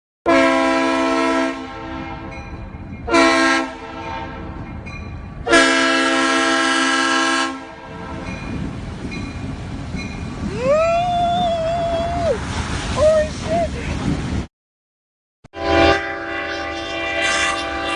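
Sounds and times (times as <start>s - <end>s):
loud horn blasts: 0.2s - 2.3s, 3.1s - 4.6s, 5.4s - 8.2s, 15.5s - 17.9s.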